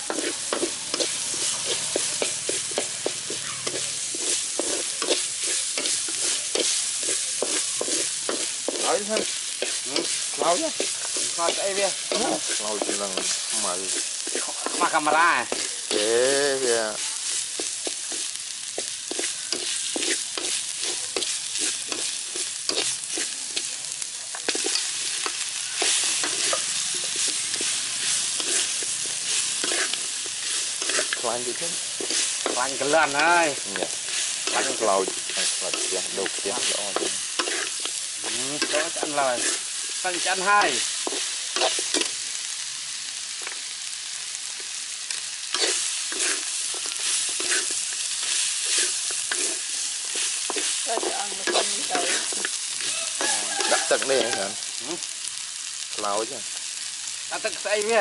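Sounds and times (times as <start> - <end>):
utensil scraping a pan: 0.0 - 16.1, 24.5 - 42.1, 45.5 - 54.5
meat sizzling in hot oil: 0.0 - 58.0.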